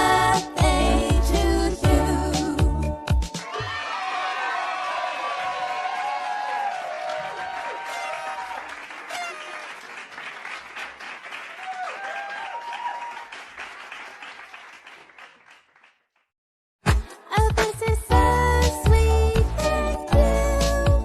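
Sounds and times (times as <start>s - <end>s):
high-pitched shouts: 3.4s - 9.7s
children cheering and clapping: 3.4s - 16.0s.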